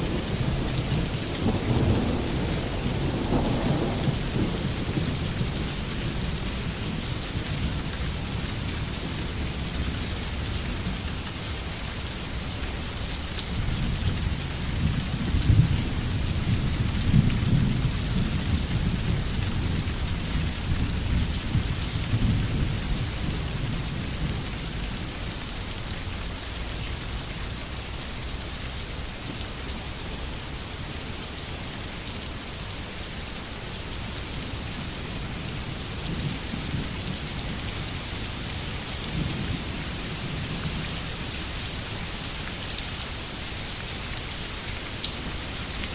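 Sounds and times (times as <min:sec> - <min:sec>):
rolling thunder: 0:00.0 - 0:06.6
steady rain falling: 0:00.0 - 0:45.9.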